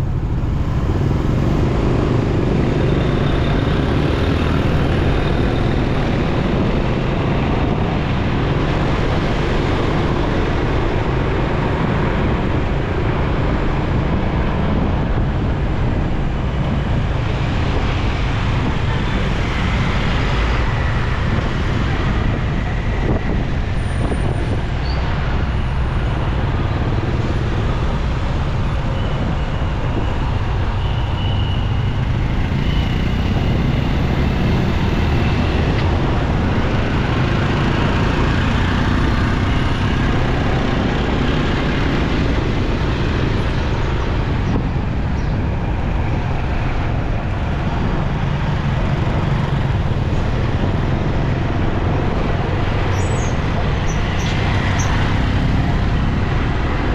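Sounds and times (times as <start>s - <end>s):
city traffic noise: 0.0s - 56.9s.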